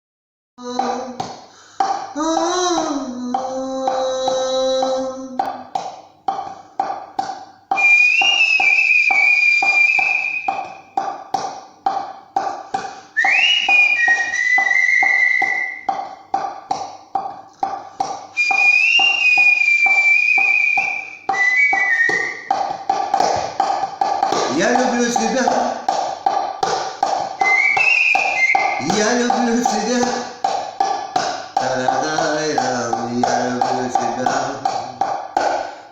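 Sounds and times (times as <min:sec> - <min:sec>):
backing track with pulsing beat: 0:00.8 - 0:35.9
high whistling: 0:07.7 - 0:11.0, 0:13.2 - 0:16.0, 0:18.3 - 0:22.6, 0:27.4 - 0:29.0.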